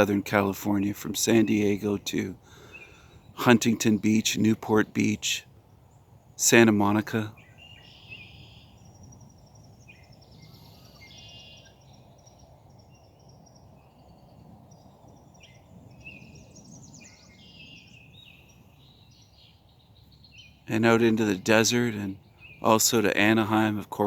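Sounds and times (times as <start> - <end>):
low outdoor rumble: 0.0 - 12.7
songbirds chirping faintly: 0.0 - 24.0.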